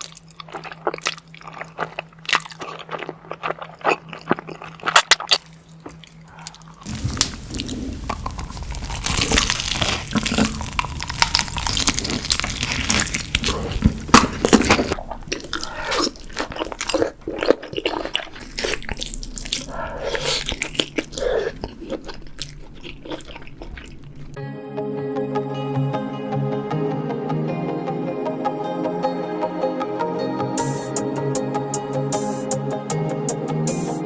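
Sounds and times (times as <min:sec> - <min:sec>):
crunchy bites and chewing: 0:00.0 - 0:24.4
wet mouth noises: 0:00.0 - 0:24.4
music: 0:24.4 - 0:34.0.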